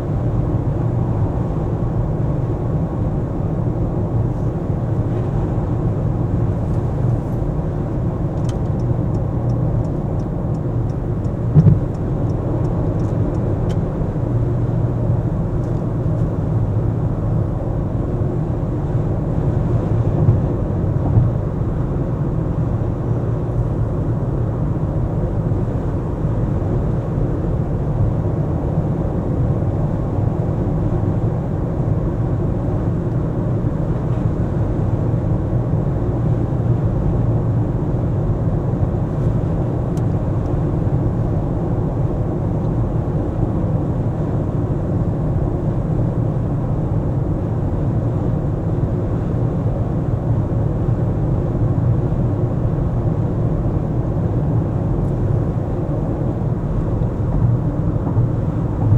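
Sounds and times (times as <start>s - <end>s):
car engine and tyre rumble: 0.0s - 58.9s
car bumps: 11.5s - 11.9s.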